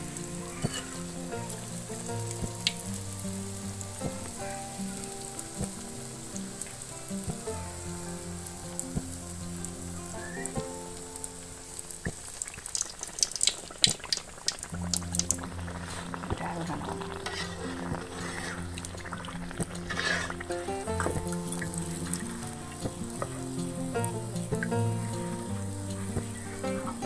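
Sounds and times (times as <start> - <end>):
batter sizzling in hot oil: 0.0 - 27.0
metal spatula scraping pan: 0.5 - 1.1, 16.9 - 21.1.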